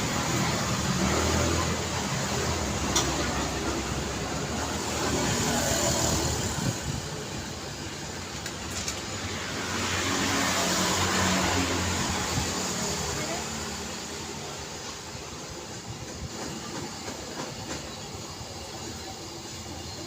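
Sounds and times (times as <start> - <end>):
cars passing by: 0.0 - 14.9.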